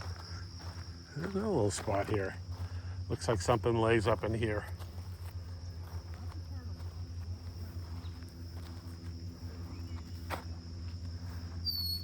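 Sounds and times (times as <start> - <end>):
footsteps through grass: 0.0 - 12.0
high insect drone: 0.0 - 12.0
bird whistle: 11.6 - 12.0.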